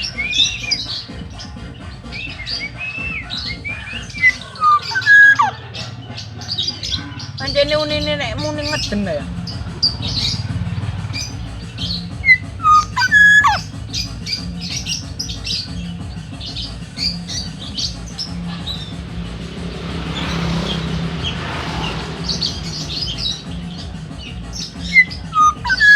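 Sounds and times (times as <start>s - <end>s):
quick high chirps: 0.0s - 7.5s, 8.8s - 25.9s
bird whistled calls: 0.0s - 25.9s
rushing noise: 18.0s - 24.1s.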